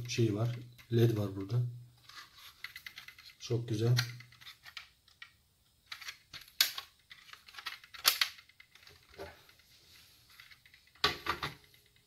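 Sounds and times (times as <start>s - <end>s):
plastic parts clicking and knocking: 2.0s - 9.7s, 10.3s - 12.0s.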